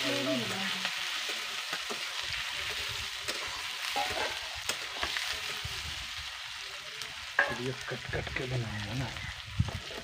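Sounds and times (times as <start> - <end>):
chicken sizzling in hot oil: 0.0 - 10.0
spoon scraping a pan: 1.1 - 5.6.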